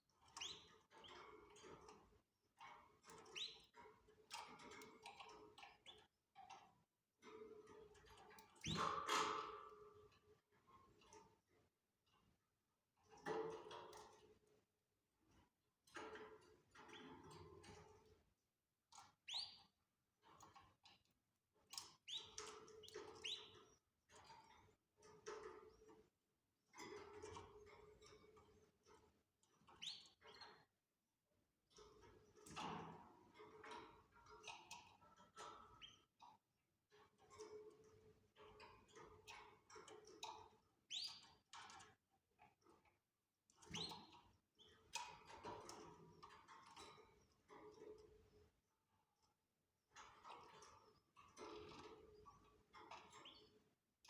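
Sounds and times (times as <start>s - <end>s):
canaries chirping: 0.3s - 1.2s, 3.2s - 3.6s, 19.3s - 19.6s, 22.1s - 23.6s, 40.9s - 41.3s
canaries chirping faintly: 19.2s - 19.6s, 40.9s - 41.3s.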